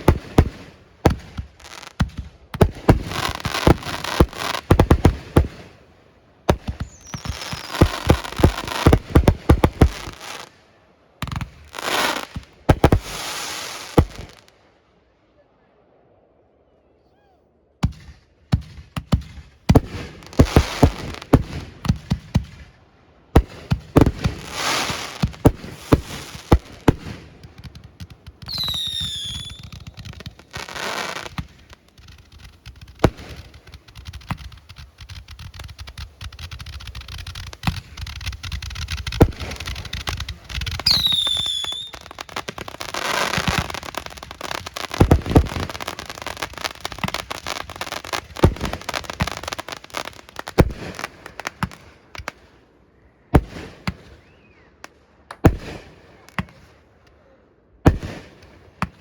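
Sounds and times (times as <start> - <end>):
firework crackling: 0.0 - 5.9, 6.5 - 10.6, 11.2 - 14.5, 19.0 - 22.7, 23.4 - 52.5
firework bangs: 0.0 - 10.5, 11.2 - 14.5, 17.8 - 22.7, 23.4 - 52.4, 55.3 - 56.7, 57.9 - 59.0
falling firework whistle: 6.8 - 10.5, 28.4 - 31.8, 36.3 - 49.6.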